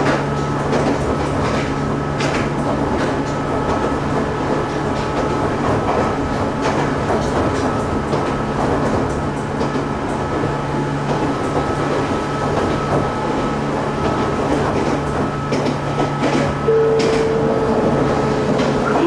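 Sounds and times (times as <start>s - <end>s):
faint clicks from rails: 0.0s - 10.4s, 14.0s - 19.0s
train hum and rumble from inside: 0.0s - 19.0s
steady higher tone: 16.6s - 19.0s.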